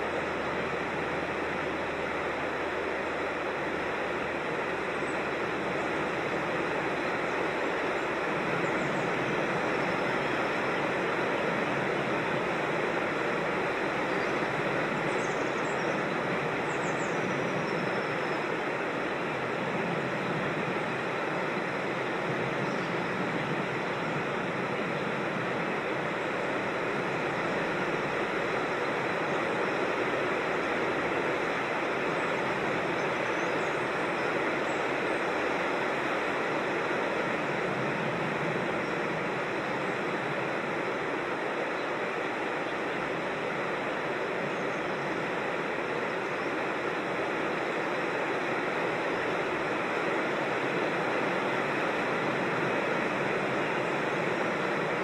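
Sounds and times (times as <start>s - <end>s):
creek and waterfall rushing: 0.0s - 55.0s.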